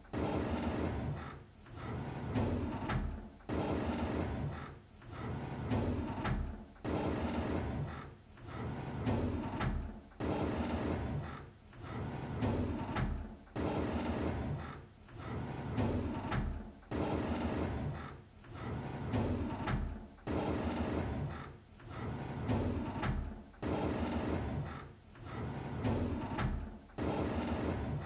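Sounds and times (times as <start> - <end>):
drawer sliding open: 15.2 - 28.0.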